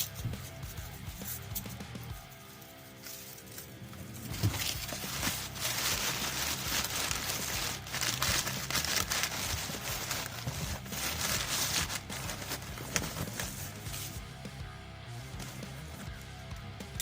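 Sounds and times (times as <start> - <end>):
packing material crinkling: 3.0 - 14.2.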